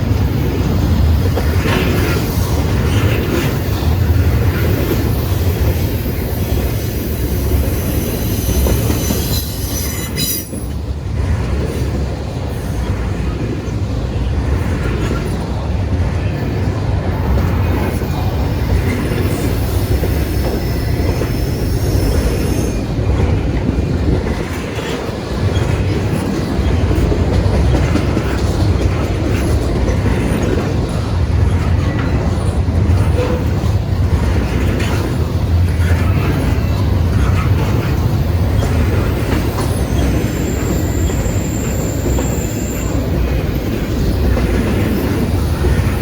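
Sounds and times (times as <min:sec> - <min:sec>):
train wheels rumbling on rail: 0:00.0 - 0:46.0
high-pitched wheel squeal: 0:07.1 - 0:10.7, 0:18.4 - 0:22.8, 0:39.4 - 0:43.6.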